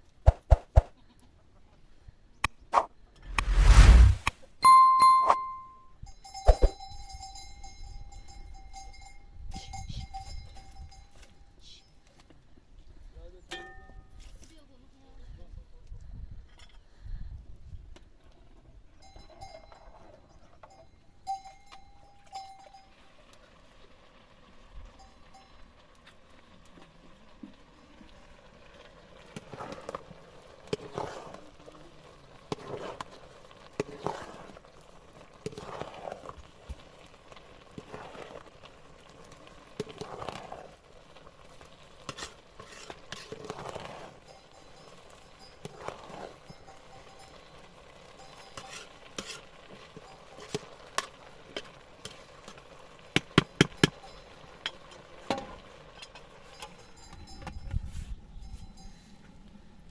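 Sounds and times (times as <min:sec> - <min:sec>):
scraping in a pot: 0:02.8 - 0:04.3, 0:30.7 - 0:31.4, 0:32.5 - 0:36.6, 0:37.7 - 0:47.4, 0:48.1 - 0:52.7.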